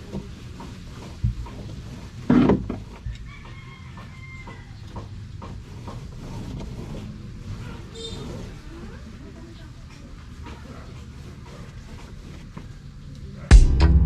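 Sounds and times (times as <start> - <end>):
rooster crowing: 3.2 - 4.8.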